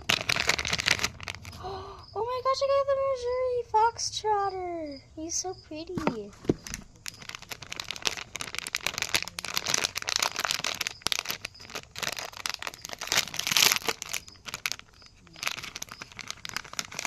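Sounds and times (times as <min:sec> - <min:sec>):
plastic packaging crinkling and tearing: 0:00.0 - 0:01.7, 0:06.0 - 0:17.0.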